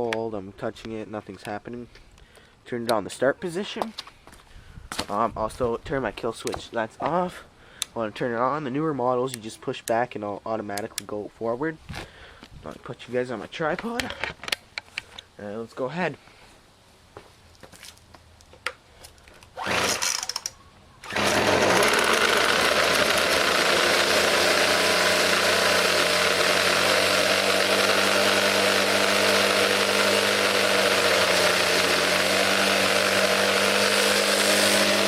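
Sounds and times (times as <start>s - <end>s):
recoil cord pull: 19.6s - 23.1s
string trimmer engine running: 19.6s - 35.0s.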